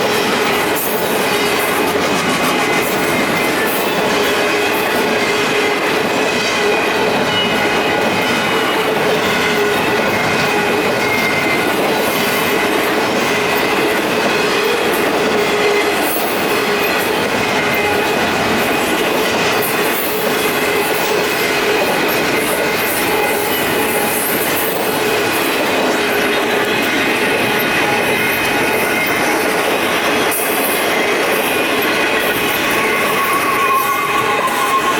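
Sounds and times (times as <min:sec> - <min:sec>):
faint squealing tones: 0:32.6 - 0:34.9.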